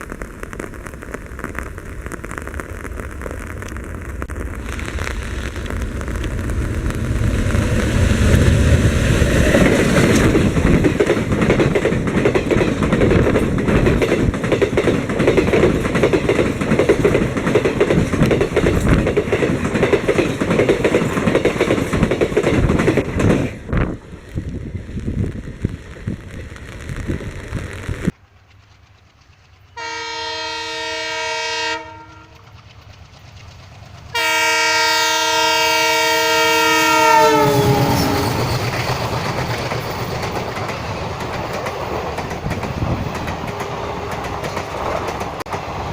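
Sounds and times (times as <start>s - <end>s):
train passing with rumble: 3.1s - 45.9s
locomotive air horn: 29.8s - 32.4s, 34.1s - 38.5s.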